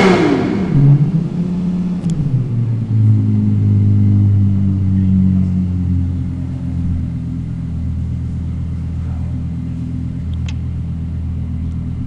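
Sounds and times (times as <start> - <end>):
car engine idling: 0.0 - 12.0
small click: 10.3 - 10.6.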